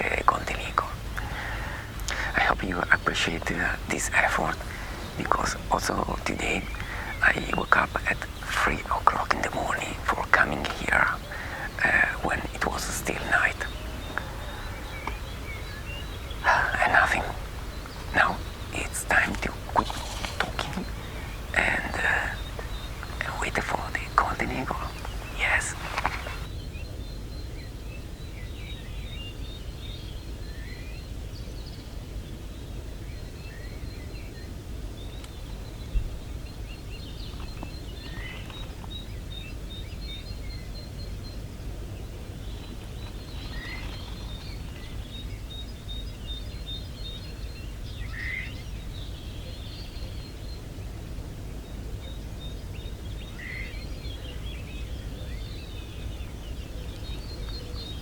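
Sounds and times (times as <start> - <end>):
steady low rumble: 0.0 - 26.5
small birds singing: 0.0 - 58.0.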